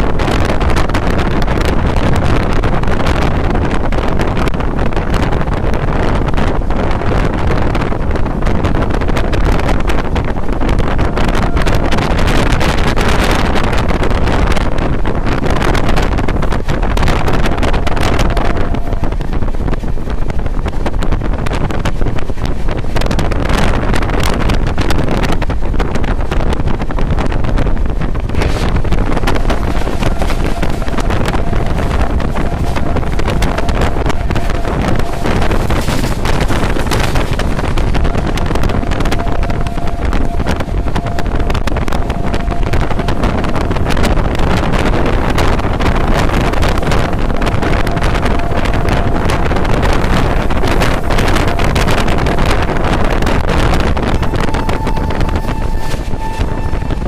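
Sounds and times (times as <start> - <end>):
train rumble: 0.0 - 57.0
wheels clattering on track: 0.0 - 57.0
wind buffeting microphone: 0.0 - 57.0
faint steady whine: 28.4 - 57.0.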